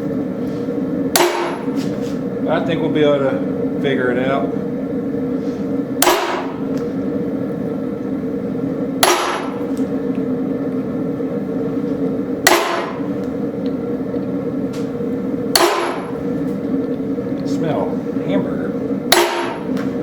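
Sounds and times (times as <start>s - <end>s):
steady hum: 0.0s - 20.0s
hammer striking steel punch: 1.1s - 1.8s, 6.0s - 6.6s, 9.0s - 9.6s, 12.4s - 13.1s, 15.5s - 16.2s, 19.1s - 19.8s.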